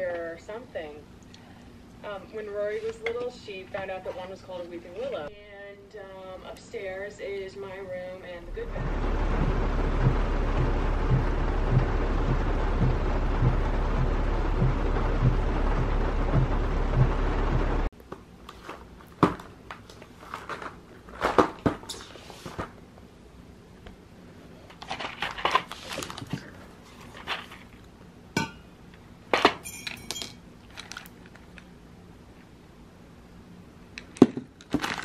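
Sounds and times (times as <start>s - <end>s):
loud rushing noise: 8.4s - 17.9s
dishes and utensils clinking: 29.5s - 30.4s.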